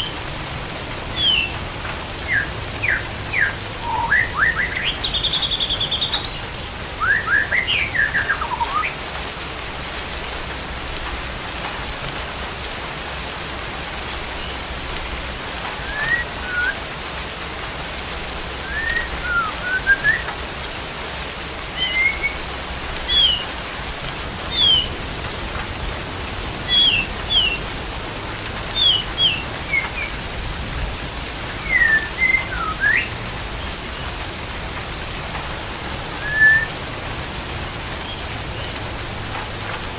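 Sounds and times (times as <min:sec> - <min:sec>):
rain hissing: 0:00.0 - 0:39.9
songbird whistling: 0:01.2 - 0:01.6, 0:02.3 - 0:09.0, 0:15.8 - 0:16.8, 0:18.6 - 0:20.3, 0:21.7 - 0:22.4, 0:23.0 - 0:23.5, 0:24.5 - 0:25.0, 0:26.7 - 0:27.6, 0:28.8 - 0:30.2, 0:31.6 - 0:33.2, 0:36.2 - 0:36.8.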